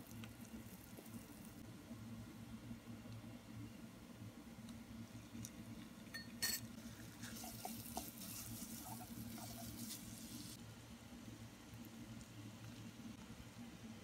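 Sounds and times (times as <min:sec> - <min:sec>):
low steady hum: 0:00.0 - 0:14.0
spatula scraping a pan: 0:06.8 - 0:10.6
meat sizzling in a frying pan: 0:07.2 - 0:10.6.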